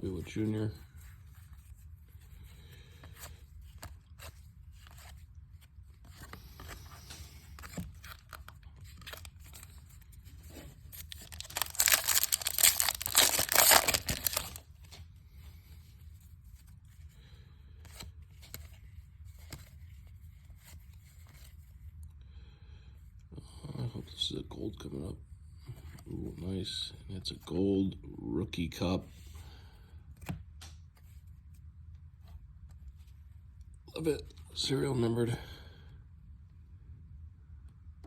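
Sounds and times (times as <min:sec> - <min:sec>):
cards rustling and clicking: 0:02.8 - 0:15.1
foil wrapper ripping: 0:11.0 - 0:14.6.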